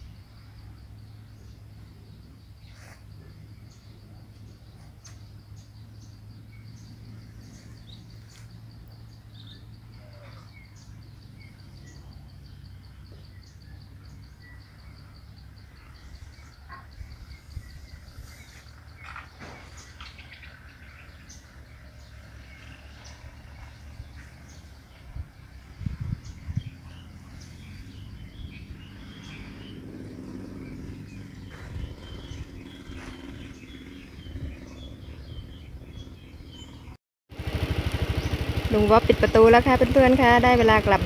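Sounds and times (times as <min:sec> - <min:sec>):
insect high-pitched pulsing trill: 0:00.0 - 0:19.4
birds chirping: 0:00.0 - 0:41.0.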